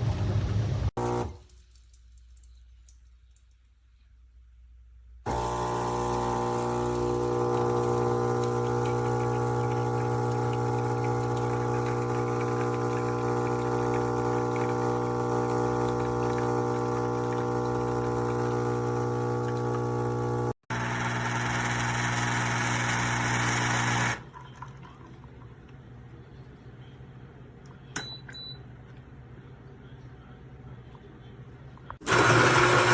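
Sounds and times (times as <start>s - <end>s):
espresso machine pump humming: 1.0s - 1.3s, 5.3s - 24.3s, 32.0s - 32.9s.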